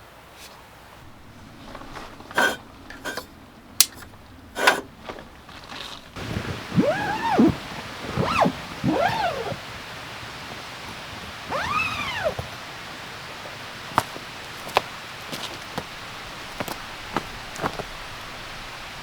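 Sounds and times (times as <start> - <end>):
dog whining: 6.8 - 7.6, 8.2 - 9.6, 11.5 - 12.4.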